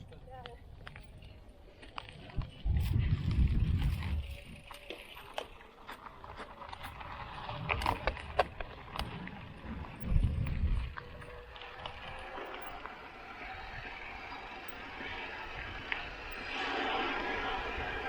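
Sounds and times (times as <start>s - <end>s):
mountain bike rattling and clicking: 0.0s - 18.0s
low rumble: 6.7s - 18.0s.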